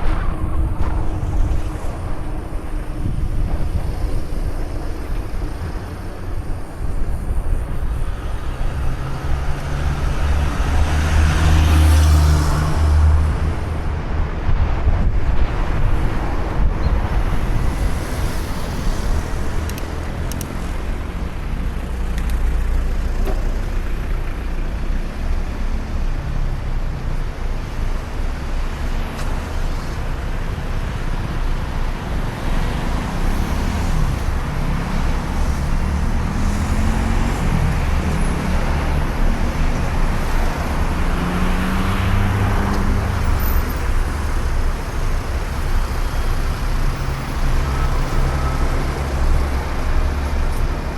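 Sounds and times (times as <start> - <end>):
road traffic passing: 0.0 - 50.9
wind rumble while cycling: 0.0 - 50.9.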